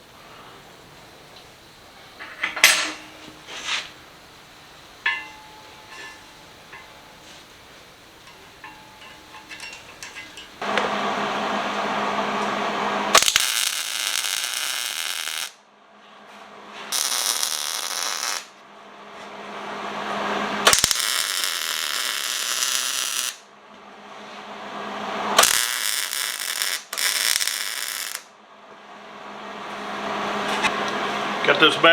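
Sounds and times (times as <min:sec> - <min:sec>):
welding arc crackling: 0:13.1 - 0:15.6, 0:16.9 - 0:18.5, 0:20.6 - 0:23.4, 0:25.4 - 0:28.3.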